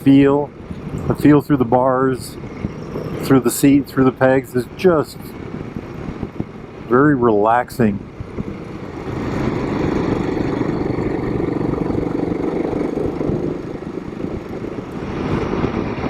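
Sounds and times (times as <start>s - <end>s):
motorcycle engine running: 8.1s - 15.0s.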